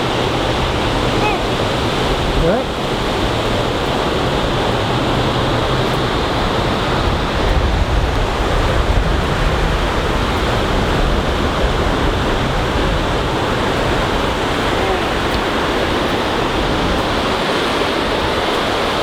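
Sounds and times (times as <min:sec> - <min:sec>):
ocean surf washing onto beach: 0:00.0 - 0:19.0
wind buffeting microphone: 0:00.0 - 0:19.0.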